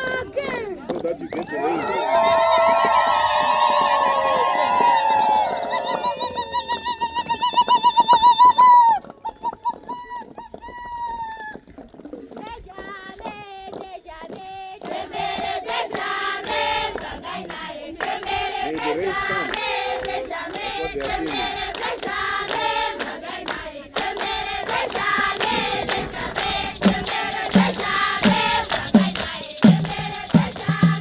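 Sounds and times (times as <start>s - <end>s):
sharp hand claps: 0.0s - 10.0s, 13.3s - 31.0s
children singing in chorus: 14.9s - 31.0s
low rhythmic thumps: 24.0s - 31.0s.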